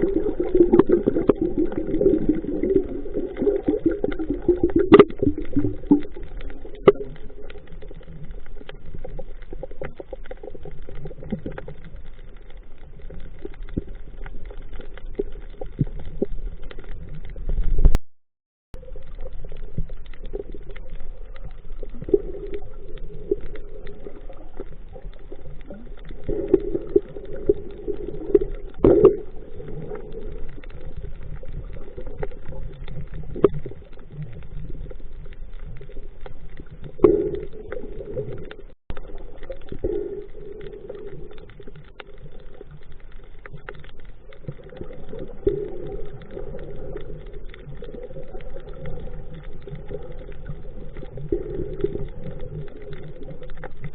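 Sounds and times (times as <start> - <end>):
muffled underwater water wash: 0.0 - 18.0, 18.7 - 53.9
underwater clicks and knocks: 0.0 - 18.0, 19.1 - 53.9.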